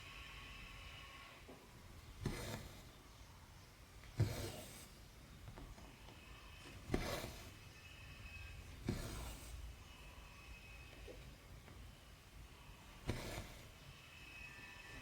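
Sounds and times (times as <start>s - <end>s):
needle ticking through fabric: 2.0s - 3.0s, 4.0s - 5.9s, 6.6s - 7.7s, 8.5s - 9.8s, 12.9s - 13.8s
thread rasping pulled through: 2.0s - 3.0s, 4.0s - 5.0s, 6.6s - 7.7s, 8.3s - 9.8s, 12.9s - 13.8s.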